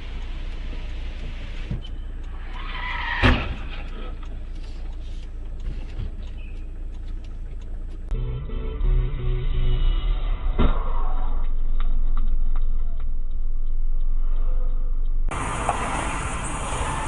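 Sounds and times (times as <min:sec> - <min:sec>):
faint clicks: 0:00.0 - 0:08.2
road rumble inside vehicle: 0:00.0 - 0:17.0
tyre squeal: 0:01.8 - 0:04.0.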